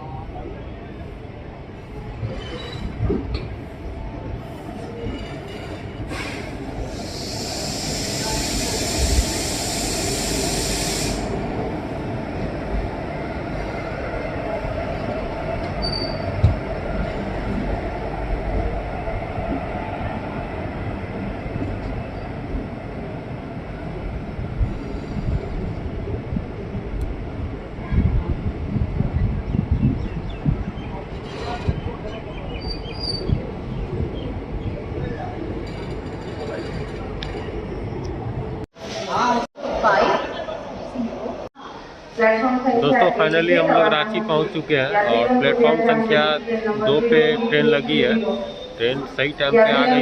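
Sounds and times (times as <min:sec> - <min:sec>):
train wheels rumbling on rails: 0:01.7 - 0:38.6
high hissing: 0:06.8 - 0:11.6.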